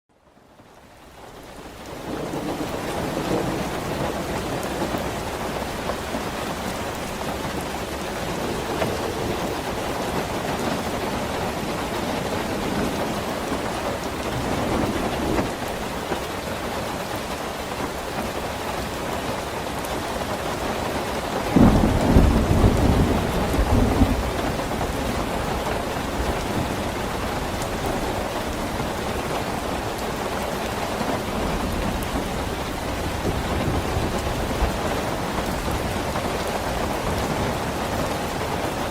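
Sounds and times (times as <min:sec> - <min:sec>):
rain falling: 0:00.1 - 0:38.9
thunder clap rumbling: 0:01.9 - 0:16.4, 0:21.4 - 0:38.9.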